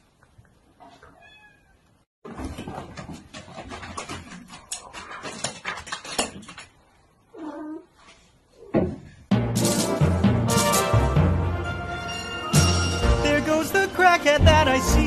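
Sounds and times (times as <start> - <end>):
cat meowing: 1.2 - 1.8.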